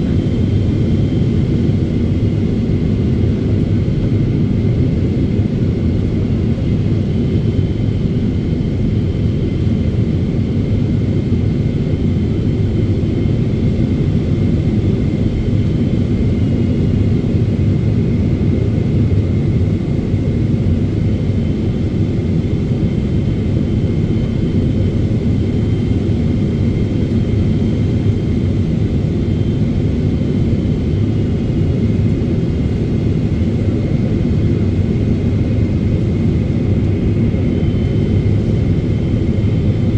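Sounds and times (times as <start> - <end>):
airplane cabin engine roar: 0.0 - 39.9.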